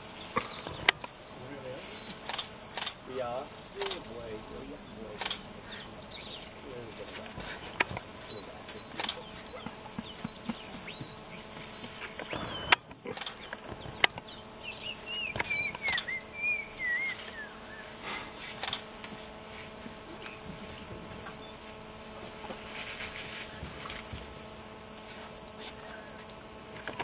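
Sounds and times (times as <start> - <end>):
faint steady hum: 0.0 - 27.0
sharp clicks and knocks: 11.8 - 14.3
bird warbling chirps: 13.4 - 17.9.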